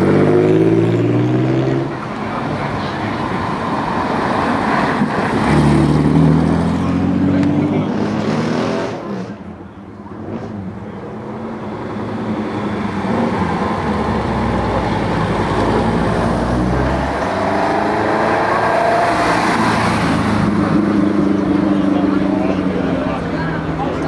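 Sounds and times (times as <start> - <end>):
engine revving: 0.0 - 1.9, 5.3 - 9.4, 12.2 - 22.5
sports car engine rumbling: 1.7 - 24.0.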